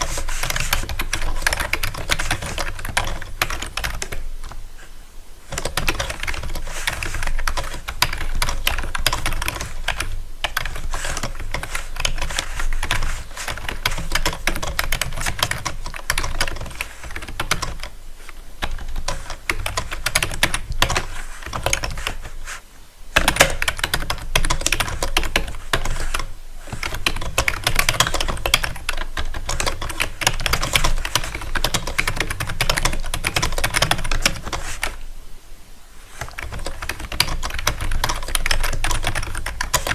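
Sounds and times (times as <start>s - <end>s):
rapid keyboard typing: 0.0s - 4.6s, 5.5s - 22.4s, 23.2s - 35.0s, 36.2s - 39.9s.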